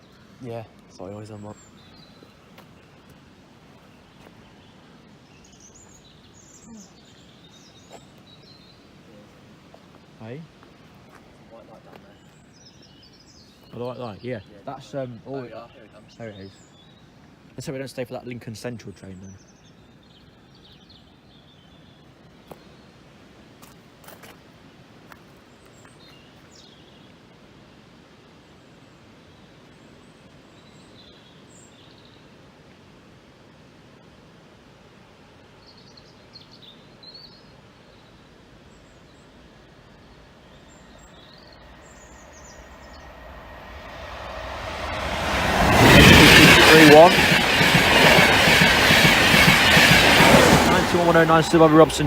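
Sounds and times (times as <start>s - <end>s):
birds chirping: 0.0s - 23.0s, 35.6s - 52.0s
low background noise: 0.0s - 45.2s.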